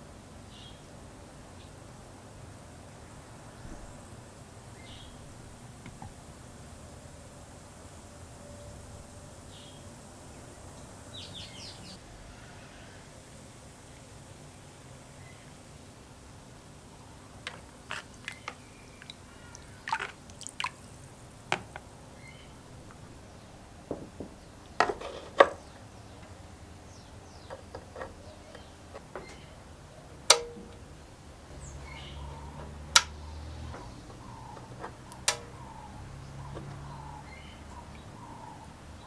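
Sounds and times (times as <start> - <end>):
tools clinking on workbench: 17.5 - 18.6.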